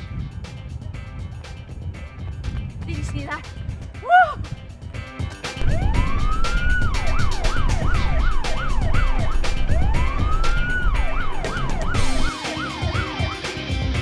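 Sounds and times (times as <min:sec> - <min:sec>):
heavy low rumble: 0:05.6 - 0:12.3
police siren wailing: 0:05.6 - 0:14.0.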